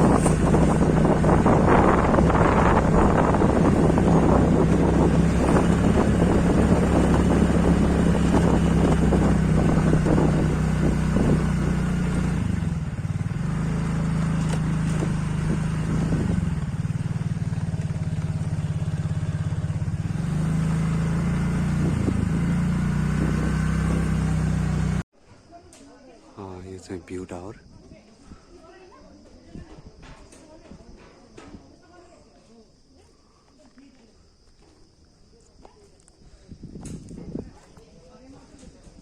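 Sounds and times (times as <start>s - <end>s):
rushing wind noise: 0.0s - 13.5s, 14.7s - 17.2s, 18.6s - 24.2s, 36.4s - 37.7s
motorcycle engine running: 0.0s - 25.0s.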